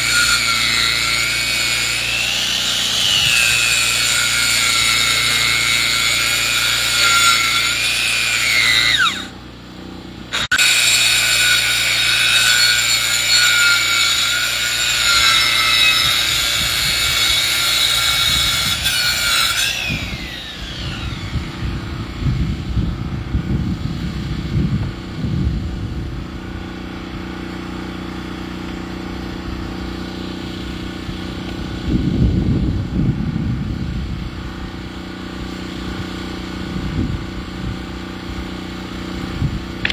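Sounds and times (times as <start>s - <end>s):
saw whining through log: 0.0s - 25.3s, 26.6s - 39.9s.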